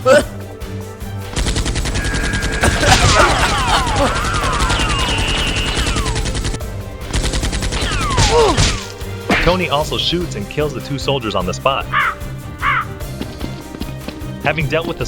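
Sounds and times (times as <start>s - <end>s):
automatic gunfire: 1.4s - 8.9s.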